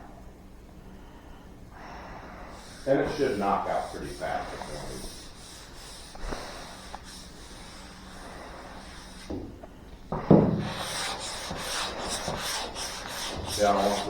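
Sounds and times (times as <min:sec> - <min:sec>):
sandpaper rubbing on metal panel: 0:02.9 - 0:06.6, 0:10.6 - 0:14.0.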